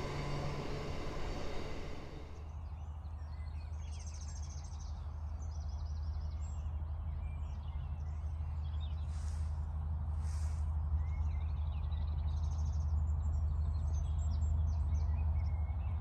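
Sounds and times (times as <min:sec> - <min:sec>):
low steady rumble: 0:00.0 - 0:02.5.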